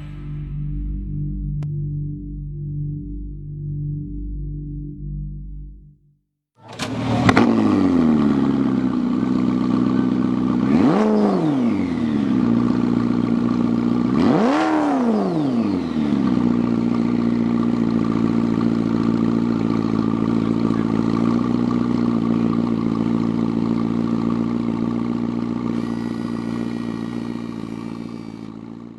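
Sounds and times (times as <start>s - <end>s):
car engine starting and revving: 6.6s - 28.9s.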